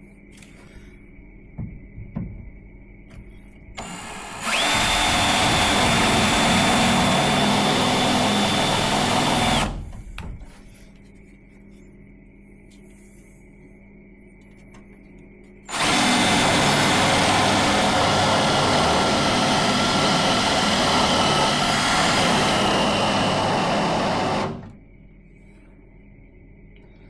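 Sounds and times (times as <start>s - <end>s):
power drill whining: 3.8s - 9.9s, 15.7s - 24.8s.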